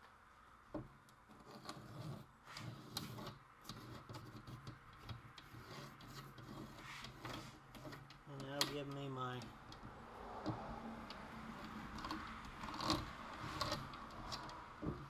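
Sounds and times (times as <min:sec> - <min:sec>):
pencil scratching on plywood: 0:01.3 - 0:09.5, 0:11.4 - 0:15.0.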